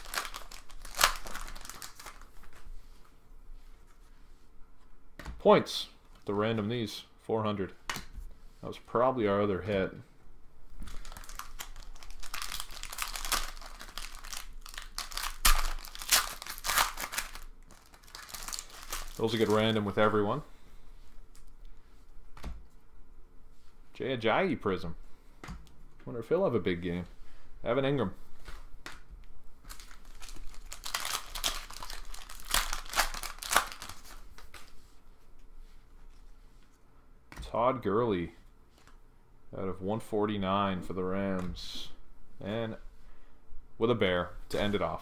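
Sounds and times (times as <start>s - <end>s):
wrapper crinkling and tearing: 0.0s - 2.6s, 10.8s - 20.2s, 29.6s - 34.8s
cards being handled: 10.8s - 20.2s.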